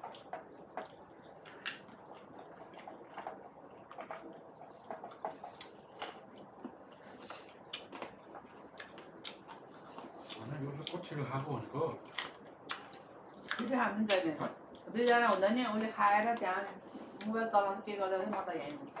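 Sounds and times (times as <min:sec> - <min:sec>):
wet chewing and lip smacks: 0:00.0 - 0:11.0, 0:12.1 - 0:15.2.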